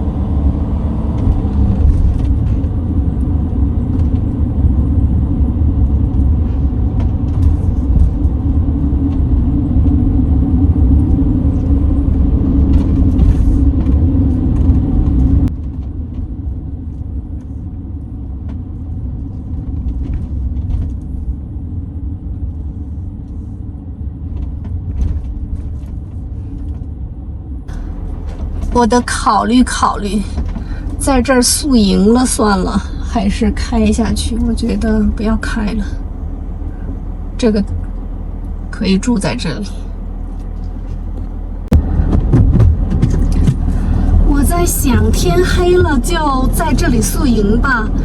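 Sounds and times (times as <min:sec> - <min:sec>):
engine and tyres rumbling: 0:00.0 - 0:15.5, 0:27.7 - 0:48.0.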